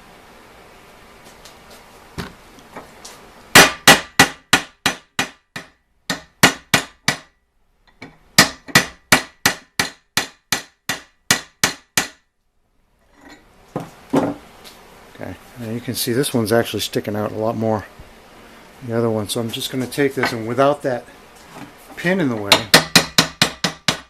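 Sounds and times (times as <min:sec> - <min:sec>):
hammer striking steel pin: 0:03.6 - 0:07.3, 0:07.9 - 0:12.2, 0:22.4 - 0:24.0.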